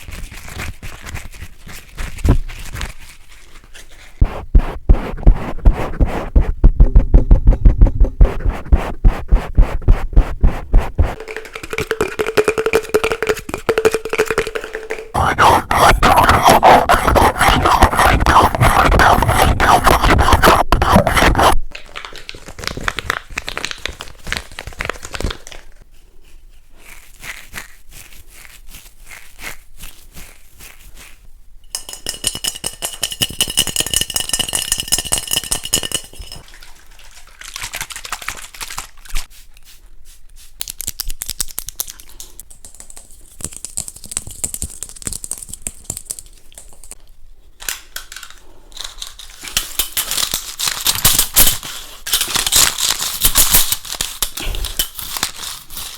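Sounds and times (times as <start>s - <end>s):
scratching: 1.8s - 21.6s
rapid tapping on small objects: 11.0s - 21.5s, 31.7s - 36.4s
crinkling: 43.3s - 55.9s.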